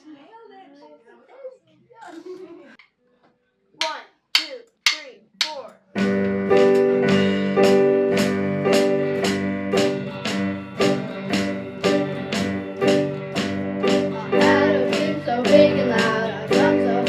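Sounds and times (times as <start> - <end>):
drum beat: 3.8 - 17.0
guitar and piano chords: 6.0 - 17.0.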